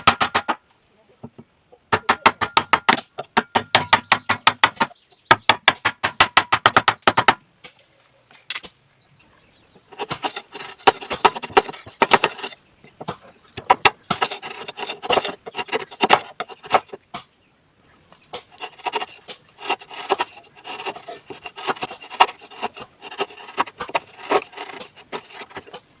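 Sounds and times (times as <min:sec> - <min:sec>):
chisel tapping wood: 0:01.2 - 0:07.4, 0:10.0 - 0:17.3, 0:18.4 - 0:25.9
chisel scraping wood: 0:09.8 - 0:17.2, 0:18.3 - 0:26.0.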